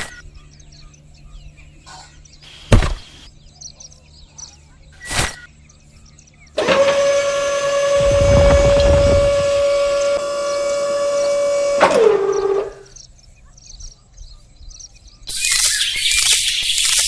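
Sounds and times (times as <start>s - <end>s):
small electric motor whining: 6.6s - 12.8s, 15.3s - 17.0s
loud hiss: 15.3s - 17.0s.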